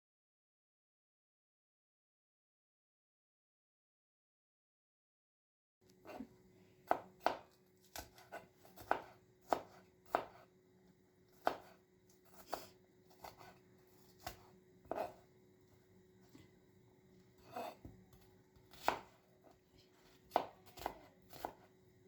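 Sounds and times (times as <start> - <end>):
knife chopping on cutting board: 6.1 - 10.5, 11.3 - 15.3, 17.4 - 21.7.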